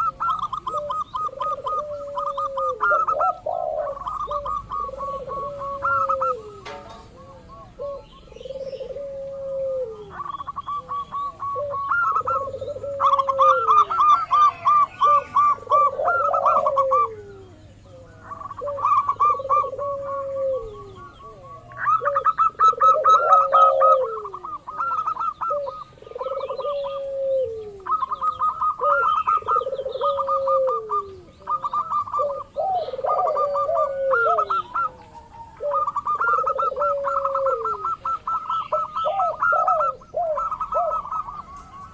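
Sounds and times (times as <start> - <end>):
doves trilled cooing: 0.0 - 41.9
low downward-sliding coo: 0.0 - 41.9.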